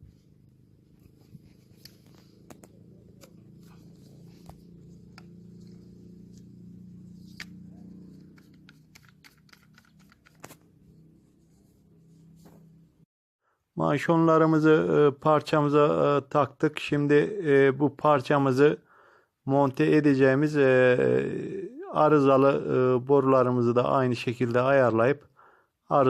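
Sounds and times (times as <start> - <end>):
low hum: 0.0 - 13.0
plastic pipe fittings clicking: 8.2 - 10.6.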